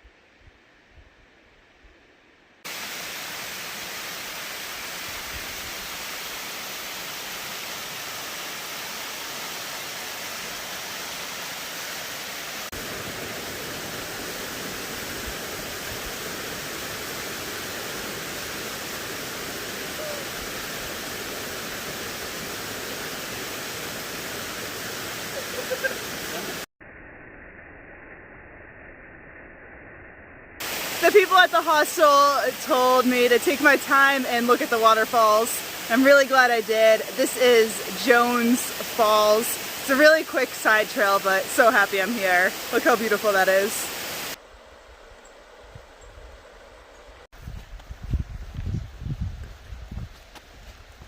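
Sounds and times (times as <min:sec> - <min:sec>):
waterfall rushing: 0:02.7 - 0:26.7, 0:30.6 - 0:44.4.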